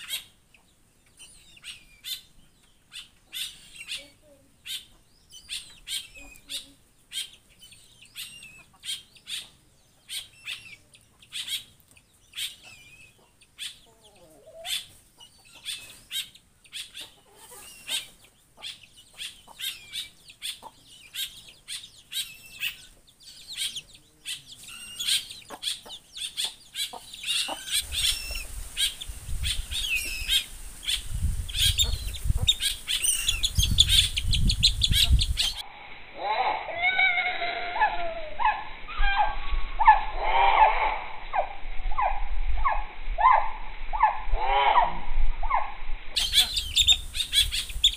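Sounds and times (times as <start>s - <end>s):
birds chirping: 0.0s - 45.6s, 46.2s - 47.9s.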